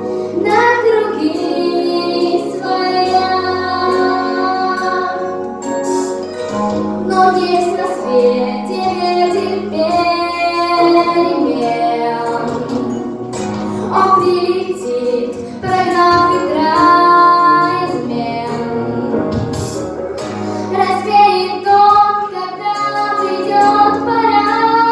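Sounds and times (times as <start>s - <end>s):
young voice singing: 0.0s - 5.5s, 6.5s - 19.8s, 20.7s - 24.9s.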